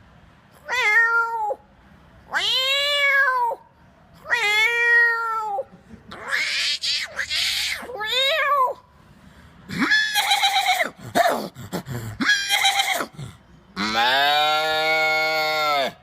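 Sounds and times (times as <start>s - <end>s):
man imitating animal calls: 9.7s - 16.0s.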